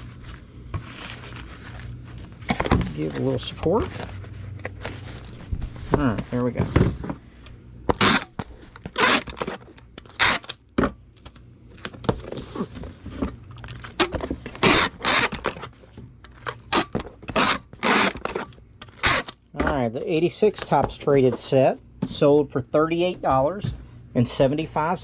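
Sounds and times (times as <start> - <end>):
cardboard box scrapes and rustles: 0.0 - 6.7.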